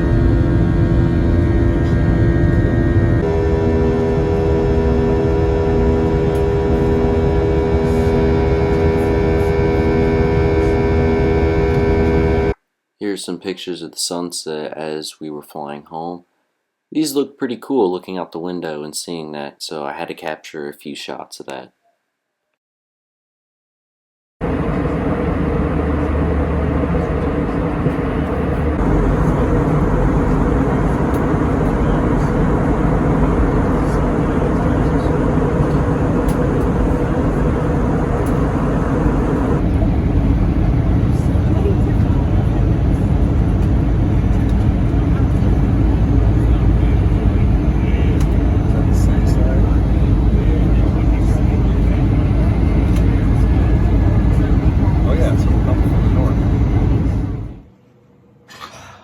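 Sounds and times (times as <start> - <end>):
airliner cabin engine drone: 0.0 - 12.6, 24.4 - 57.7.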